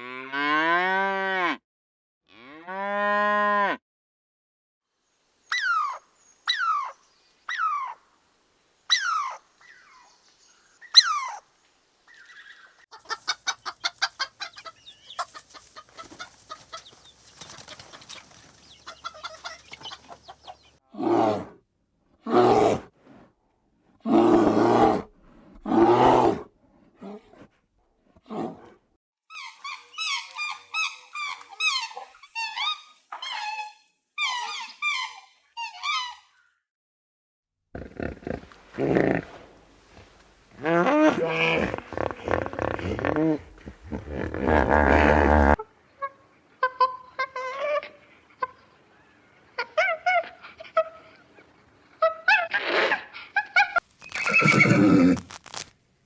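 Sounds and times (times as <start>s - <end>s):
loud harsh animal calls: 54.0s - 55.6s.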